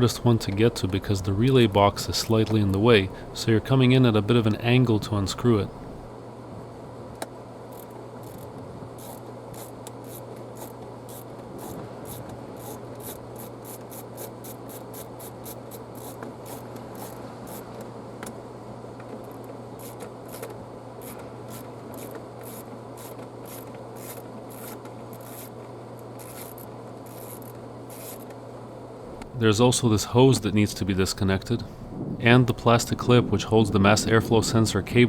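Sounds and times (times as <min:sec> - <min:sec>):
low hum: 0:00.0 - 0:09.2, 0:28.8 - 0:35.0
wrench scraping clicks: 0:07.7 - 0:17.8, 0:19.3 - 0:28.4.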